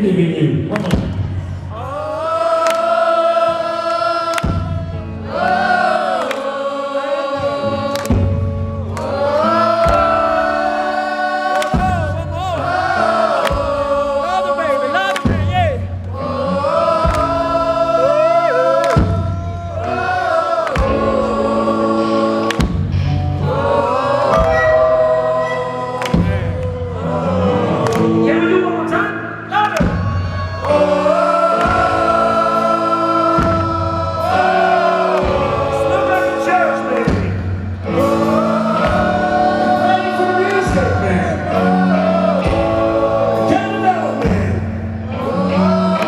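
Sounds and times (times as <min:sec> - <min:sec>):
many voices singing: 0:00.8 - 0:46.0
live band music: 0:07.4 - 0:46.0
steady bass: 0:11.6 - 0:46.0.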